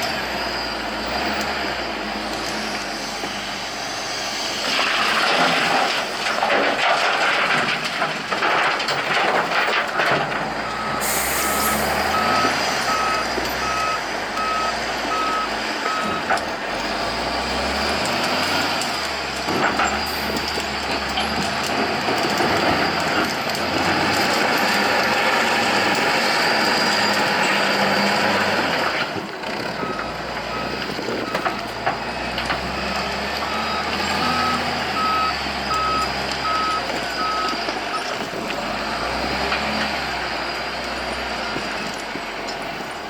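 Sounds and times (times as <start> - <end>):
wheel loader diesel engine: 0.0 - 43.0
reversing alarm beeping: 10.6 - 16.3, 29.8 - 38.1
air hiss: 11.0 - 12.1.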